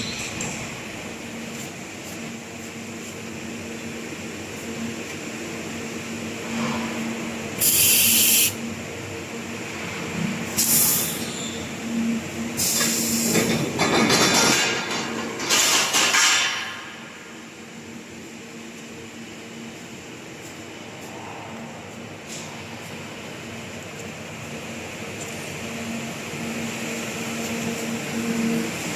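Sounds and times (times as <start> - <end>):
steady machine hum: 0.0 - 28.9
sharp air hisses: 7.6 - 8.6, 10.6 - 11.3, 12.6 - 13.3.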